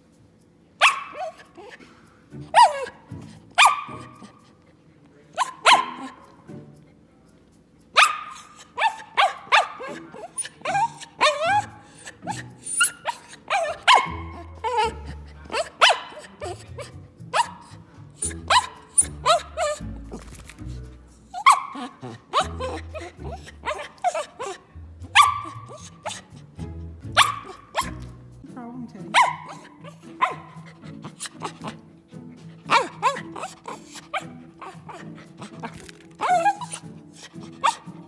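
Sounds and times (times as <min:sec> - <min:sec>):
dog barking: 0:00.8 - 0:01.5, 0:02.5 - 0:03.0, 0:03.6 - 0:04.3, 0:05.4 - 0:06.2, 0:08.0 - 0:19.8, 0:21.4 - 0:24.6, 0:25.2 - 0:26.2, 0:27.2 - 0:28.0, 0:29.2 - 0:30.6, 0:32.7 - 0:35.0, 0:37.6 - 0:37.9.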